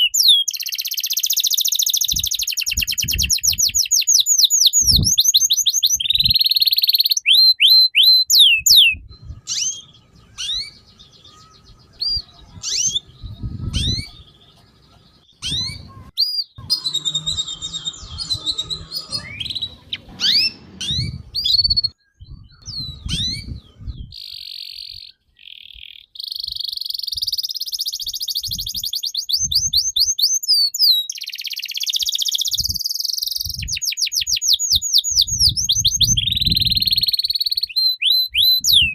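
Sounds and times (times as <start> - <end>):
songbird singing: 0.0 - 38.9
low thuds: 18.9 - 24.1.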